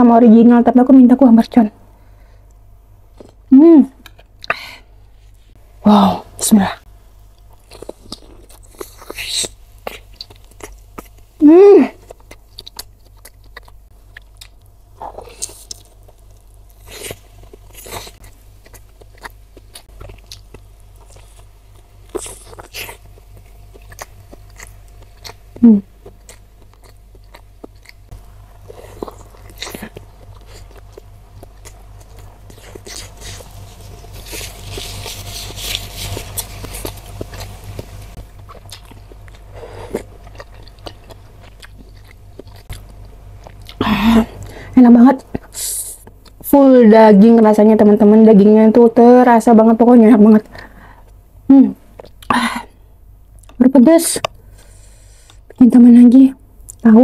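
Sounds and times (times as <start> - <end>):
person humming: 11.4 - 12.0, 43.8 - 44.4
chewing and biting: 12.0 - 28.0, 28.6 - 43.8.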